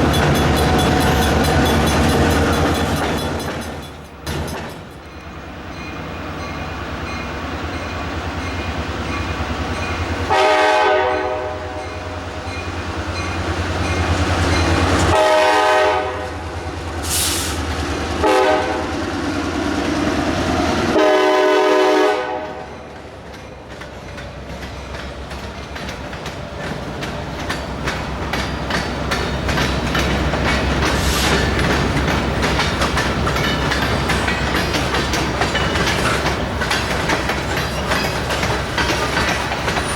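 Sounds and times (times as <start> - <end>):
train wheels clacking over rail joints: 0.0 - 11.1, 11.8 - 16.1, 16.8 - 39.9
locomotive horn: 10.3 - 12.4, 15.0 - 17.5, 18.2 - 18.9, 20.9 - 22.8.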